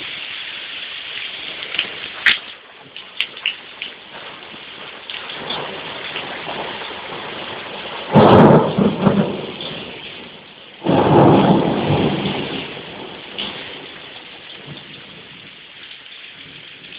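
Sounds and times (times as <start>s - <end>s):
steady rain: 0.0s - 16.9s
thunder claps rumbling: 1.4s - 16.9s.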